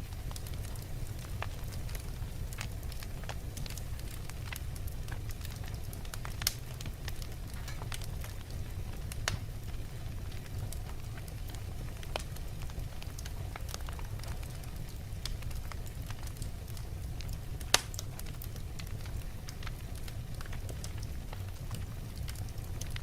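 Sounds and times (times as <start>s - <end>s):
low fire rumble: 0.0s - 23.0s
wood fire crackling: 0.0s - 23.0s
sharp fire pops: 4.8s - 8.6s, 9.2s - 9.5s, 17.6s - 19.6s.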